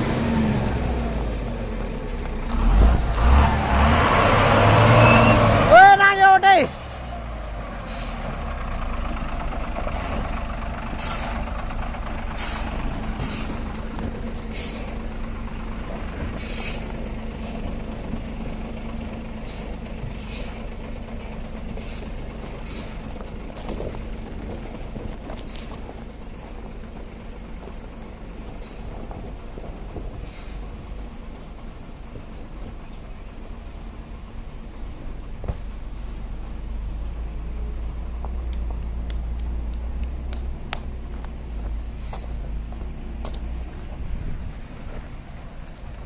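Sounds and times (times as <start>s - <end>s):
truck diesel engine running: 0.0s - 46.0s
air-brake hisses: 7.8s - 8.3s, 11.0s - 11.4s, 12.3s - 13.6s, 14.5s - 15.0s, 16.4s - 17.6s.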